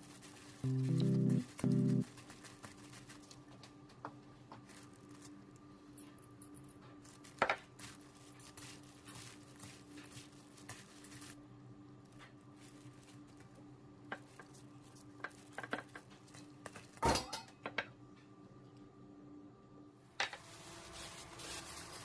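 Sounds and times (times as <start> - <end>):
steady low hum: 0.3 - 2.2.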